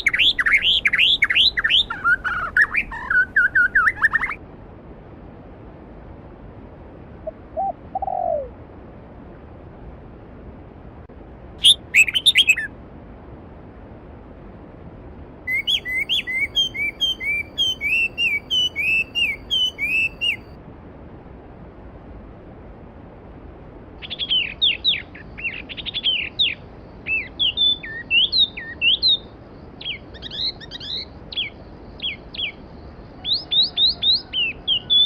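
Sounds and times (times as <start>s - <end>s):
birds calling: 0.0s - 4.4s, 11.6s - 12.7s, 15.5s - 20.5s
quick repeated bird chirps: 11.6s - 12.7s, 15.5s - 20.5s.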